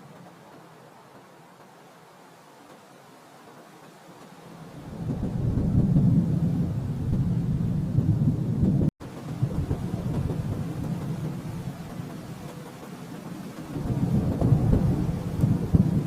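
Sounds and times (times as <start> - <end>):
rolling thunder: 4.8 - 16.0.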